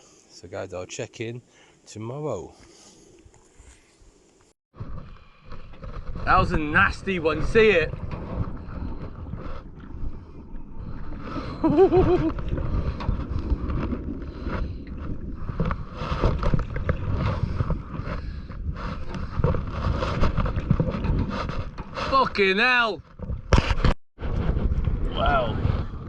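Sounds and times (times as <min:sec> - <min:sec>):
wind buffeting microphone: 0:24.2 - 0:26.0.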